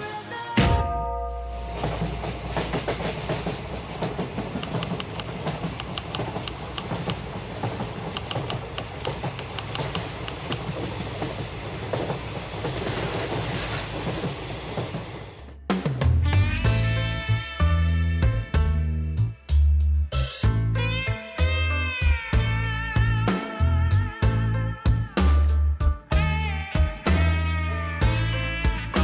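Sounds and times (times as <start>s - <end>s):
train passing at speed: 1.5s - 15.6s
wheels clacking over rail joints: 1.7s - 15.4s.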